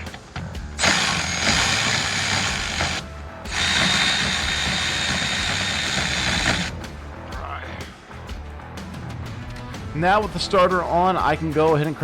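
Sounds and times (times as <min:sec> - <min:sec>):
power tool driving bolts: 0:00.8 - 0:06.8.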